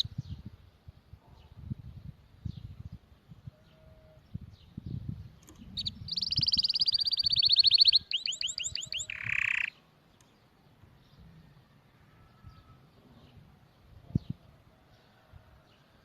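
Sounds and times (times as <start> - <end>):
canary singing trills: 0.0 - 0.3, 3.5 - 10.3.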